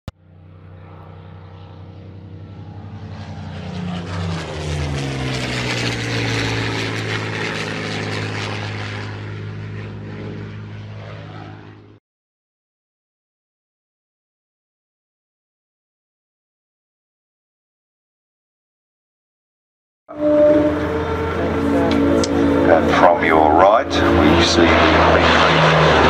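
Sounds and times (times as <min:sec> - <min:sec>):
propeller aircraft flying past: 0:00.1 - 0:12.0, 0:20.1 - 0:26.0.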